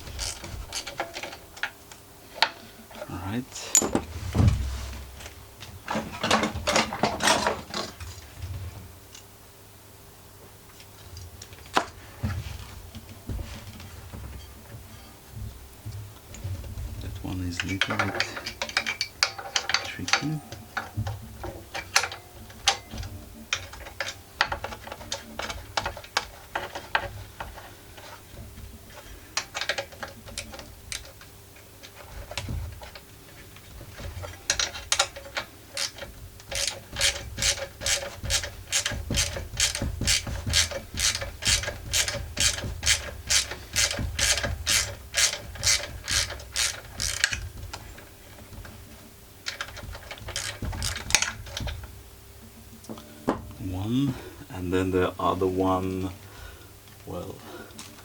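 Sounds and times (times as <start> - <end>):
ratchet wrench clicking: 34.6 - 47.4, 49.5 - 51.7.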